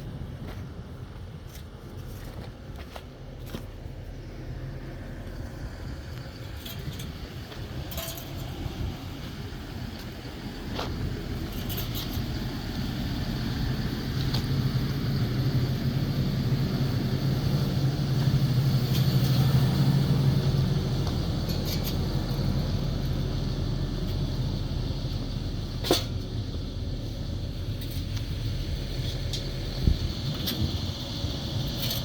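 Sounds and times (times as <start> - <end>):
vehicle engine and road rumble: 0.0 - 32.0.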